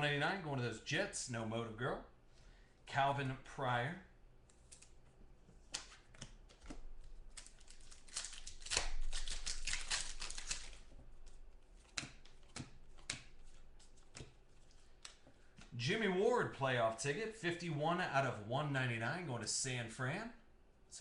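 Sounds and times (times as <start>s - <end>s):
cards and packs rustling: 4.6s - 15.8s
trading cards clicking and tapping: 11.8s - 15.7s.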